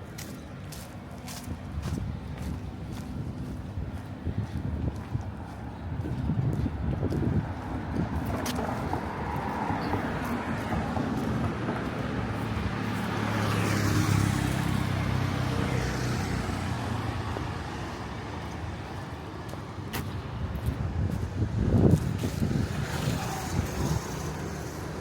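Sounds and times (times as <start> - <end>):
steady traffic noise: 0.0 - 25.0
vehicle engine passing by: 7.3 - 18.1, 21.6 - 25.0.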